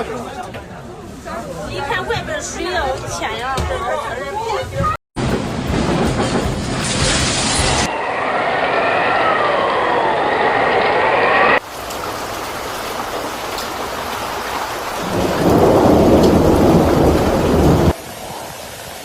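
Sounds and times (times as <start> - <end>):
wind: 0.0 - 19.0
loud low rumble: 7.7 - 11.6
wavering tones: 7.9 - 11.6
heavy rain: 11.6 - 19.0.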